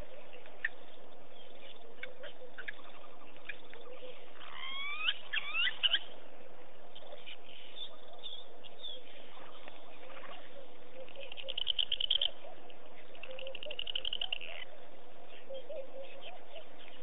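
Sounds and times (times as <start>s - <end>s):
bird whistling: 4.4s - 6.1s.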